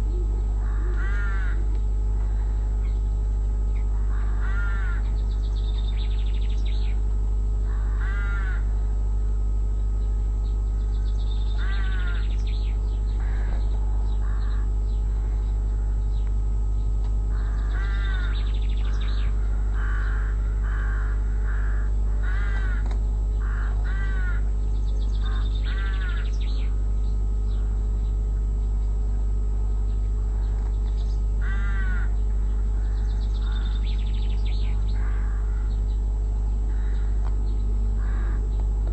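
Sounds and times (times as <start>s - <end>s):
low hum: 0.0s - 38.9s
crows cawing: 0.6s - 2.9s, 3.8s - 5.3s, 7.6s - 8.9s, 10.9s - 16.1s, 17.3s - 26.8s, 27.5s - 27.9s, 30.3s - 36.0s, 36.6s - 38.9s.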